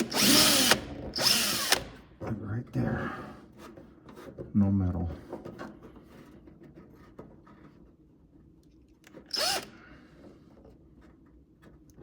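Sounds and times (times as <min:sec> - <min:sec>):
power drill burst: 0:00.0 - 0:02.0, 0:09.3 - 0:09.7.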